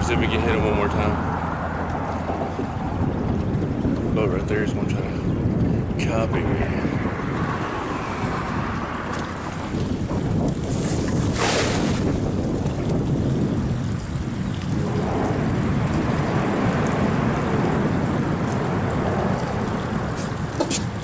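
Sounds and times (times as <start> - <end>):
wind buffeting microphone: 0.0 - 21.0
hissing splash: 10.7 - 12.2.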